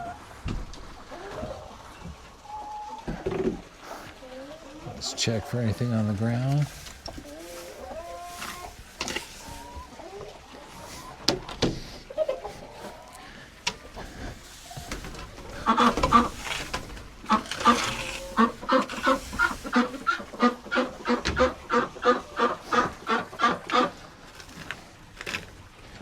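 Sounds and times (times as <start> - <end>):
duck quacking: 15.5 - 16.6.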